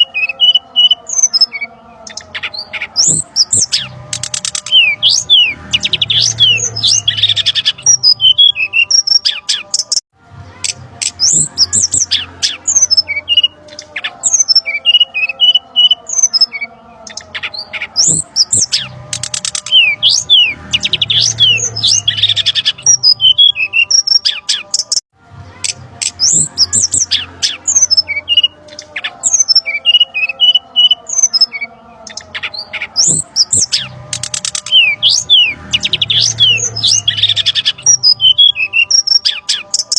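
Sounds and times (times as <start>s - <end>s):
bird chirps and whistles: 26.1s - 39.9s.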